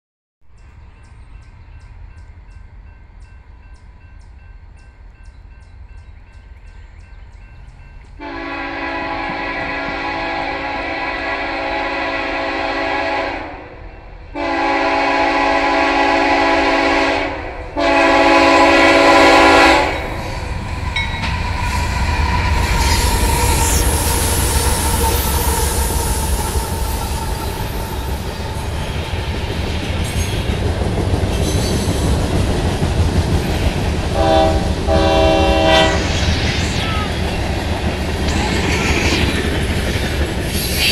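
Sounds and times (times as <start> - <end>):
locomotive horn blasts: 8.2 - 13.7, 14.4 - 20.4, 34.2 - 36.2
train wheels rumbling and clattering: 17.6 - 40.9.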